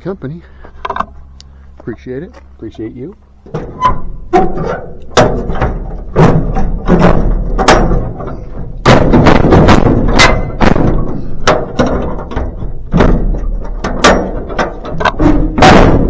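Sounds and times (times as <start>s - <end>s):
loud thuds and knocks: 3.5s - 16.0s.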